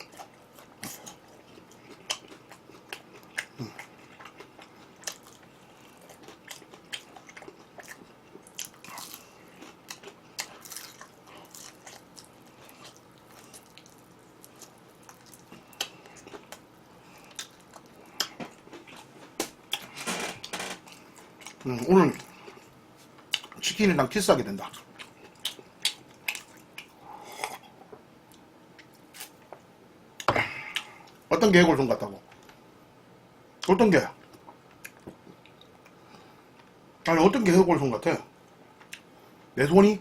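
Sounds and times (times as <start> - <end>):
crunching fried chicken bites: 0.0 - 22.4.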